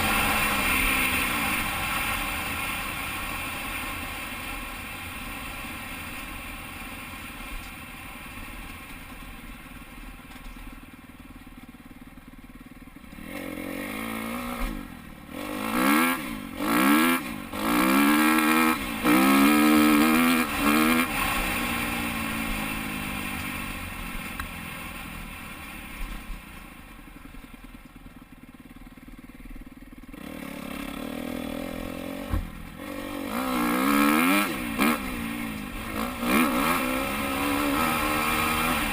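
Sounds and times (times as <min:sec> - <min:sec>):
dirt bike engine revving: 0:00.0 - 0:03.2, 0:13.1 - 0:23.8, 0:30.1 - 0:38.9.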